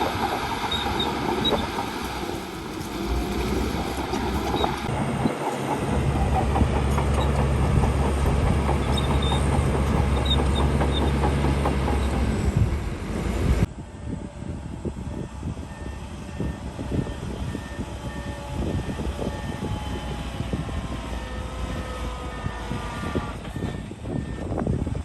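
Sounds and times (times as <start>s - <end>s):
steel tracks clattering: 0.0s - 13.7s
bulldozer engine drone: 0.0s - 25.0s.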